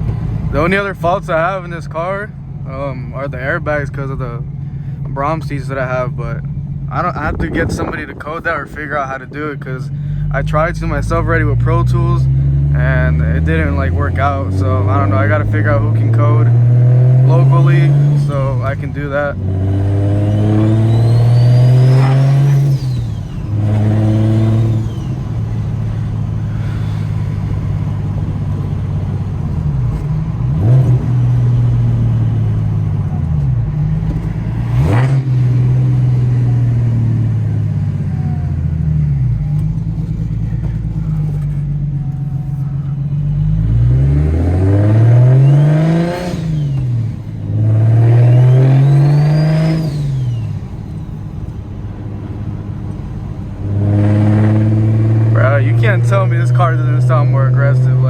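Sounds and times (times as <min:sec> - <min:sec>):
turbocharged car engine accelerating: 0:00.0 - 0:58.0
high turbo whistle: 0:20.3 - 0:23.7, 0:48.0 - 0:51.5.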